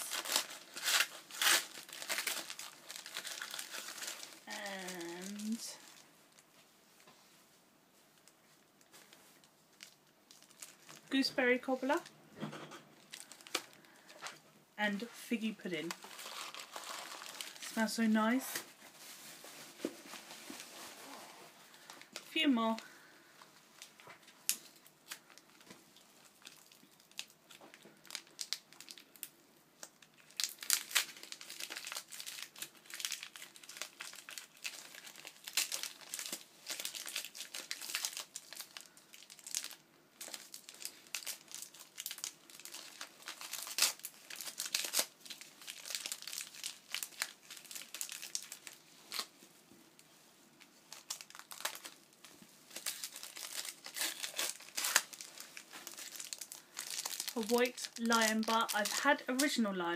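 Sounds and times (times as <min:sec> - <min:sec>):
packaging tearing: 0:00.0 - 0:06.0, 0:15.9 - 0:17.8, 0:26.2 - 0:49.3, 0:50.9 - 0:52.1, 0:52.7 - 0:59.5
packaging crinkling: 0:00.0 - 0:06.5, 0:08.2 - 0:11.3, 0:13.0 - 0:14.4, 0:15.8 - 0:49.4, 0:50.6 - 0:59.6.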